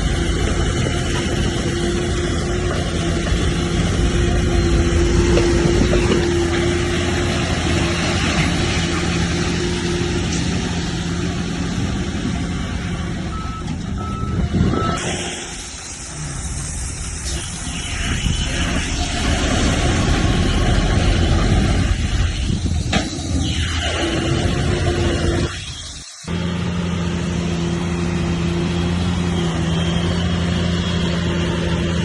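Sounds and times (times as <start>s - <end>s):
diesel earthmoving machinery running: 0.0s - 32.0s
reverse alarm beeps: 13.3s - 15.0s.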